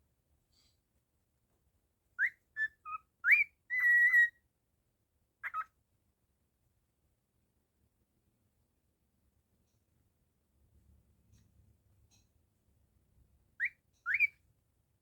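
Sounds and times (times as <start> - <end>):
cockatiel whistling: 2.2 - 4.4, 13.6 - 14.4.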